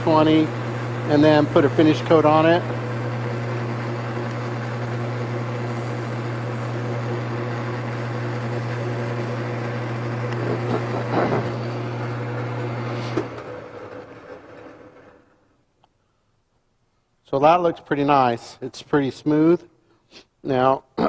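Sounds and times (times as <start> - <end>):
sandpaper hissing on spinning wood: 0.0 - 11.3
wood lathe motor running: 0.0 - 15.2.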